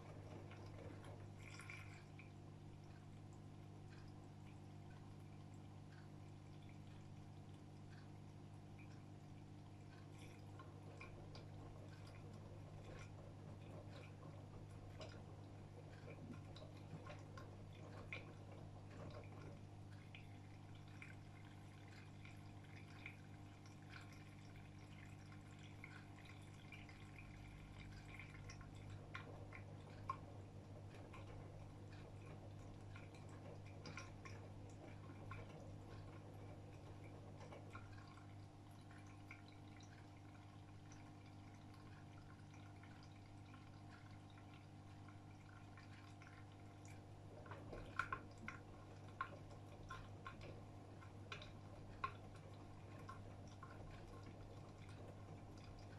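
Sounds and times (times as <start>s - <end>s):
washing machine low hum: 0.0s - 55.9s
water dripping and trickling: 0.0s - 55.9s.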